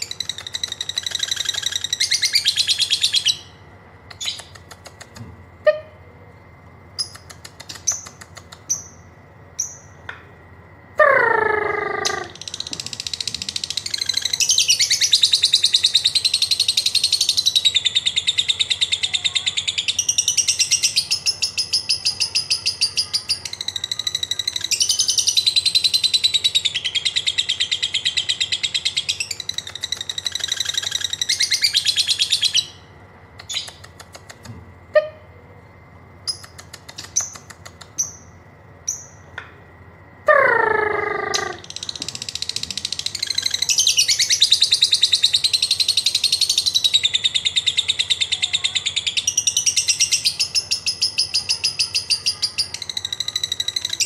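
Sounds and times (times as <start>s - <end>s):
bird ticks and chirps: 0.0s - 5.4s, 7.0s - 10.2s, 28.2s - 32.8s, 33.4s - 34.6s, 36.2s - 39.4s
lovebird chattering song: 0.0s - 5.9s, 7.0s - 10.0s, 11.0s - 35.2s, 36.2s - 39.3s, 40.3s - 54.0s.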